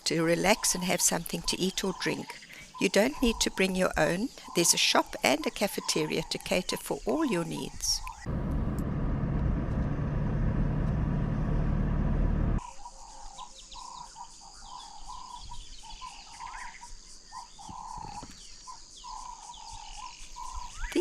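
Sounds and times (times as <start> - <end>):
loud background rumble: 8.3 - 12.6.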